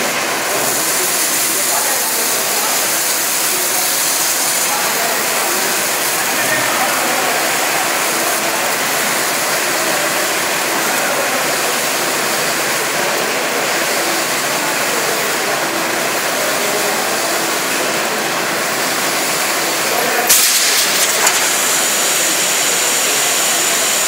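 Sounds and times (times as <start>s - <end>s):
high-pressure water spray: 0.0s - 24.0s.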